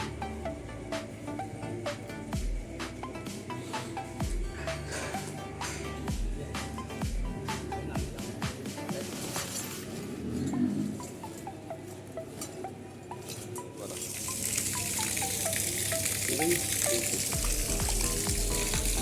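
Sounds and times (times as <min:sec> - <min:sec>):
water gushing from pipe: 0:13.9 - 0:19.0.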